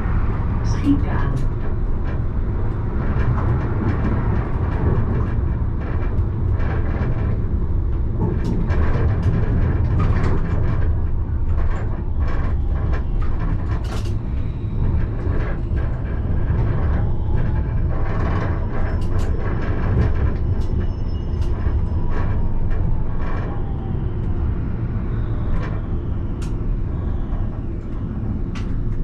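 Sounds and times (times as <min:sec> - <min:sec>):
tram rumbling: 0:00.0 - 0:29.0.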